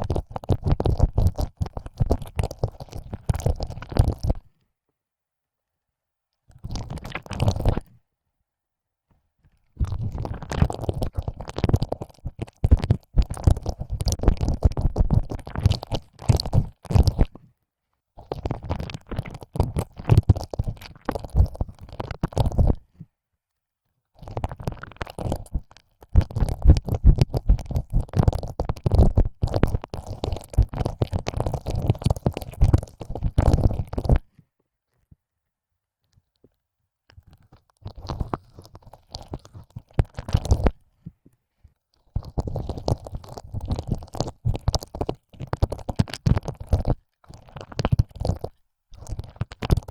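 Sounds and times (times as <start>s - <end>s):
wet licking clicks and smacks: 37.8s - 40.7s.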